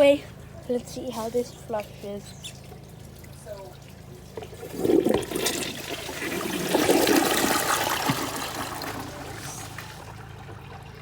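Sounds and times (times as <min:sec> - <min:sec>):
toilet flushing: 0:04.3 - 0:11.0.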